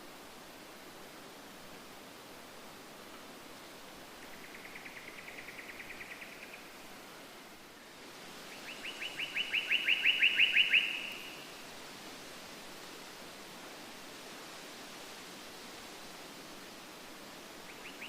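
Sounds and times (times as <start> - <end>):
steady hiss: 0.0 - 18.0
bird trilling: 9.4 - 11.2.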